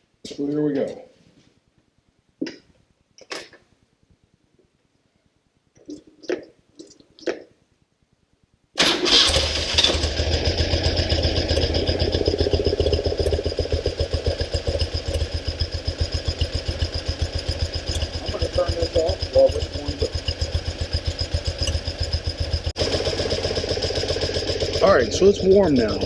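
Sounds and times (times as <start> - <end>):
motorcycle engine starting and idling: 8.8 - 26.0.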